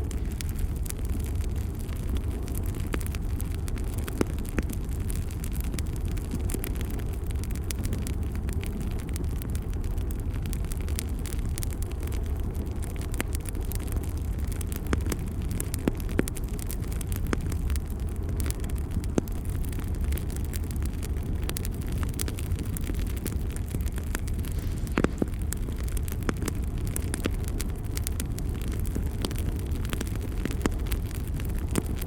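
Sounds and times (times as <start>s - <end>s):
burning wood crackling and popping: 0.0s - 32.0s
low rumble of flames: 0.0s - 32.0s.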